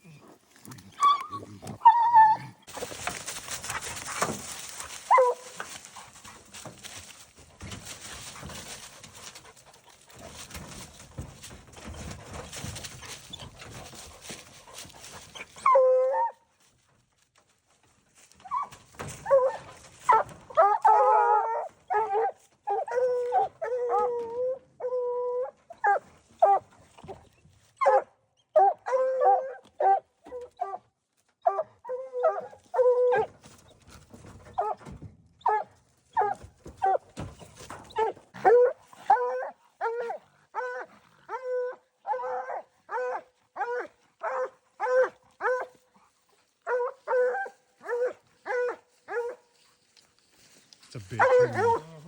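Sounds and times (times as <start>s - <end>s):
dog baying: 0.9s - 6.8s, 18.5s - 26.6s, 31.4s - 33.4s, 35.5s - 37.0s, 38.0s - 49.5s, 51.1s - 52.0s
dog barking: 27.8s - 30.0s, 46.7s - 49.4s, 51.1s - 52.0s.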